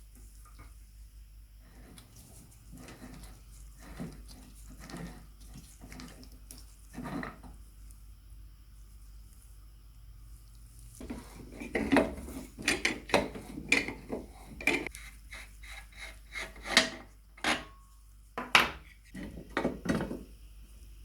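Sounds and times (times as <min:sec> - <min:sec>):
scraping and clinking on metal: 0:11.0 - 0:14.9, 0:15.8 - 0:17.8.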